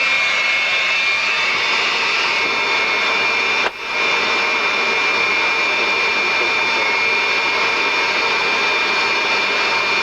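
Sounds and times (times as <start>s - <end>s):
jet engines whining: 0.0s - 10.0s.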